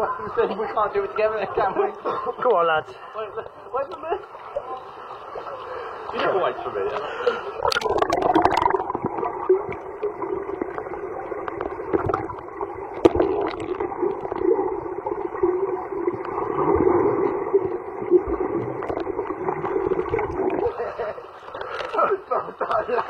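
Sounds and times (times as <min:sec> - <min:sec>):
muffled underwater water and bubbles: 0:03.0 - 0:23.0.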